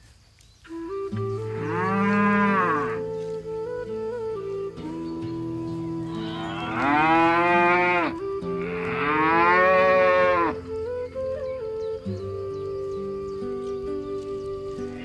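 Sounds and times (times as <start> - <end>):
soft background music: 0.7 - 15.0
cow mooing: 1.6 - 3.0, 6.1 - 10.6.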